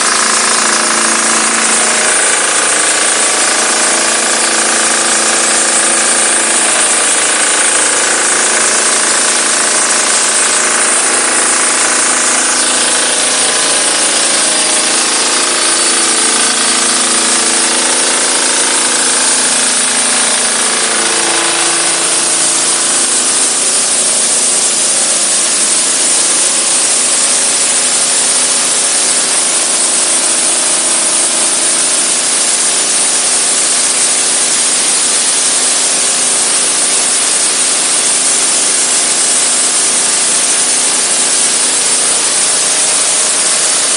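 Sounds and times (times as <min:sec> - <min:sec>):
diesel engine running: 0:00.0 - 0:38.7
high-pressure spray hissing: 0:00.0 - 0:43.9.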